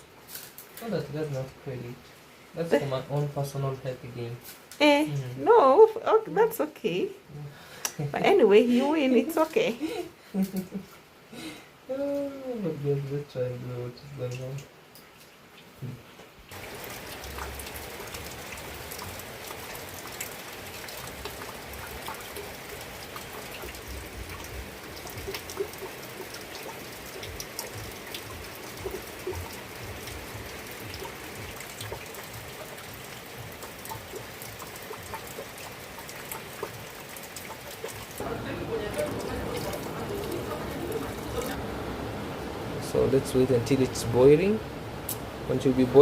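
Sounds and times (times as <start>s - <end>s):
steady rain falling: 0.0s - 46.0s
raindrops ticking: 7.7s - 10.9s, 13.9s - 46.0s.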